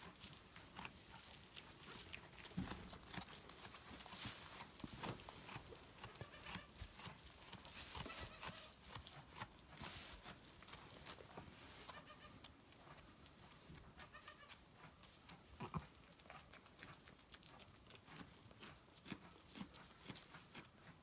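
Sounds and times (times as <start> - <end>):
small rustles: 0.0 - 16.0
goats bleating: 6.0 - 6.8, 8.0 - 8.8, 11.9 - 12.4, 14.0 - 14.6.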